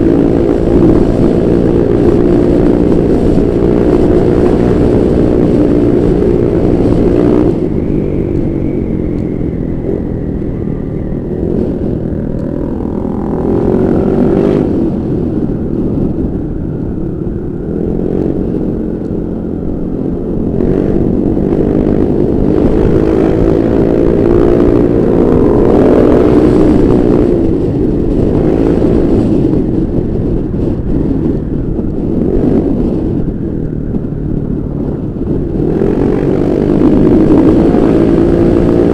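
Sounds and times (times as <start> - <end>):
scooter engine revving: 0.0 - 16.0.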